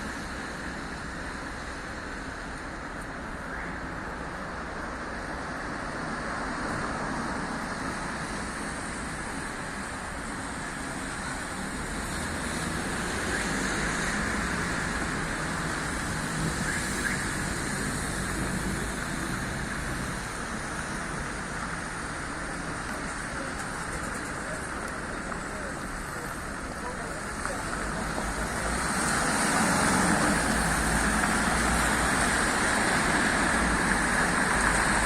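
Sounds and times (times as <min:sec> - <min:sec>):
cars passing on city street: 0:00.0 - 0:35.0.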